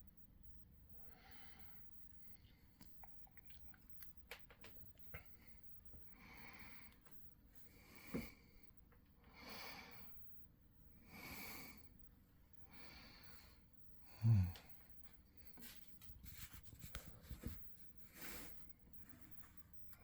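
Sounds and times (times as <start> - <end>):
person breathing softly: 1.0 - 2.8, 5.2 - 10.2, 11.0 - 12.0, 12.6 - 15.8.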